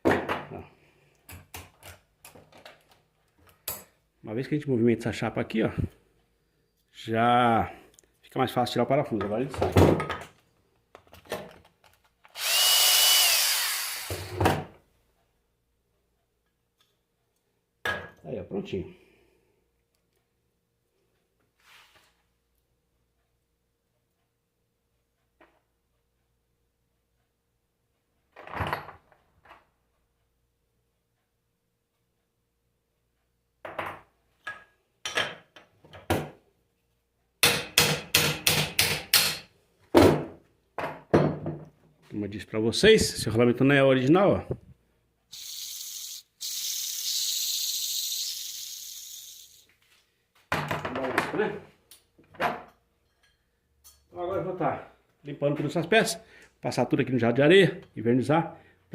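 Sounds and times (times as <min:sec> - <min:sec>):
power screwdriver motor whining: 0:12.3 - 0:14.4, 0:45.3 - 0:49.7.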